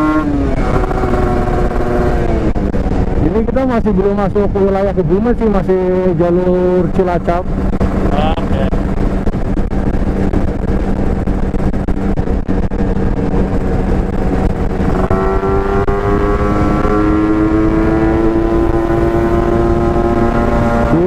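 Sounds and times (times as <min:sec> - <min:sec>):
two-stroke motorcycle engine: 0:00.0 - 0:04.1
wind noise on microphone: 0:00.0 - 0:21.0.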